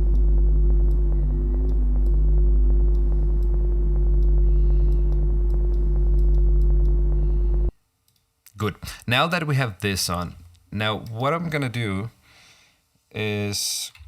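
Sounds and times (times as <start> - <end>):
deep rumble and hum: 0.0 - 7.8
faint crackly clicks: 2.8 - 8.6.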